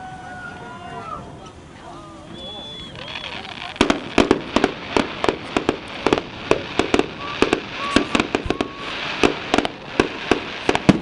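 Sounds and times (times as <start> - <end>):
fireworks bangs: 2.4 - 11.0.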